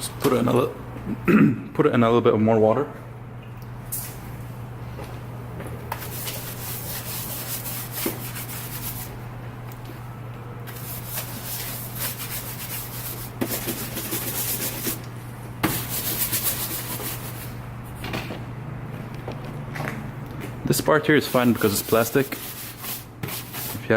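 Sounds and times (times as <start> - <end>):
steady low hum: 0.0 - 23.9
wet brush scrubbing: 6.0 - 9.2, 10.7 - 17.6, 21.1 - 23.9.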